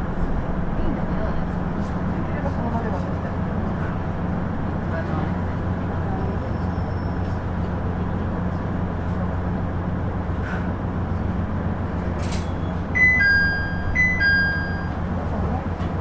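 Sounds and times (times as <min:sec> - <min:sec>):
diesel engine drone: 0:07.3 - 0:16.0
two-note chime: 0:13.0 - 0:15.0.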